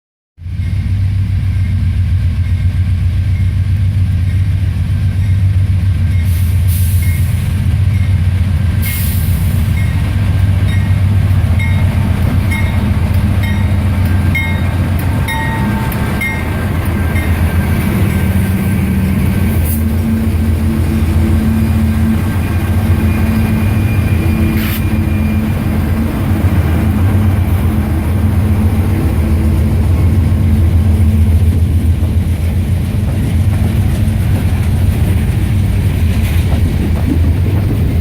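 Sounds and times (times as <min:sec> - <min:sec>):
diesel rumble: 0:07.7 - 0:38.0
wheels clicking over rail joints: 0:31.9 - 0:38.0.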